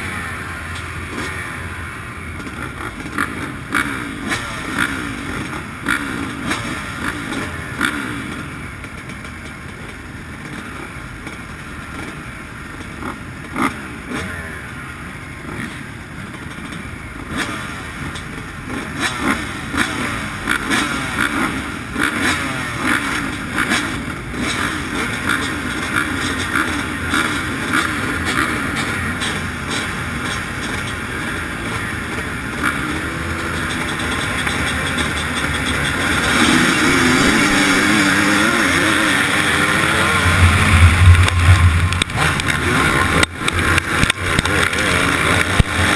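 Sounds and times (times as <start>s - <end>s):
motocross bike engine revving: 0.0s - 45.9s
knocks and rattles: 23.7s - 45.9s.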